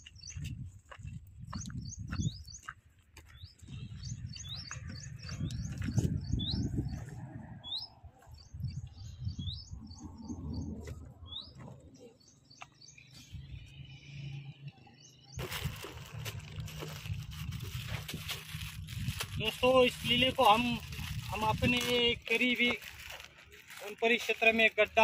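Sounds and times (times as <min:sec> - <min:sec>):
footsteps on stony ground: 0:00.0 - 0:09.0, 0:10.7 - 0:13.8
small birds chirping: 0:00.0 - 0:25.0.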